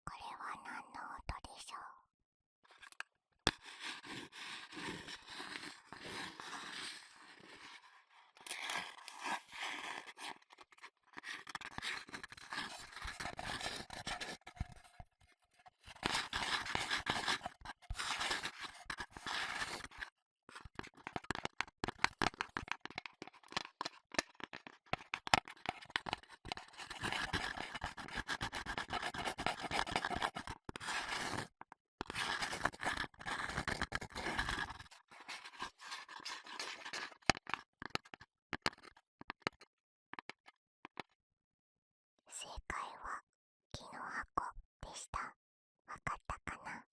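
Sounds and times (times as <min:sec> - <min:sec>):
close scratching and scraping: 0:03.6 - 0:07.8, 0:08.4 - 0:14.8, 0:15.9 - 0:20.0, 0:32.2 - 0:37.3.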